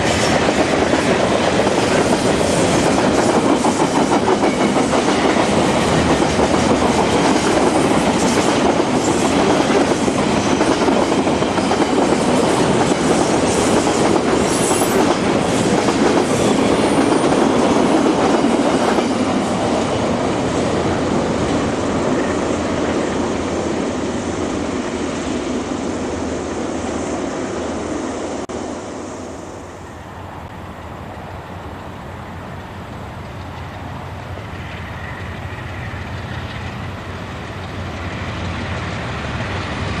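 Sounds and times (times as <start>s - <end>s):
train wheels clacking over rail joints: 0.0s - 20.6s, 32.6s - 40.0s.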